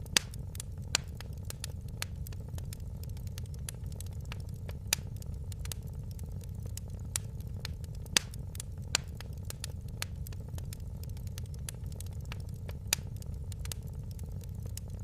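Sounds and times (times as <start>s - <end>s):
low rumble of burning: 0.0s - 15.0s
wood fire crackling and popping: 0.0s - 15.0s.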